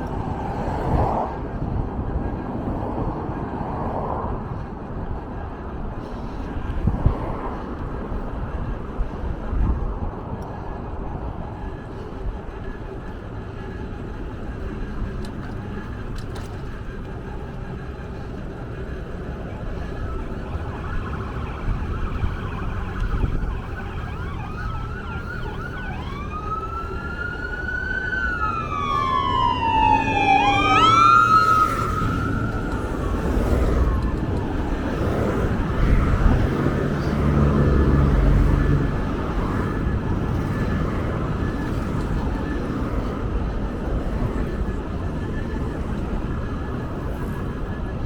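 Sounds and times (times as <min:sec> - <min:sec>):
low vehicle rumble: 0:00.0 - 0:48.0
siren wailing: 0:17.0 - 0:48.0.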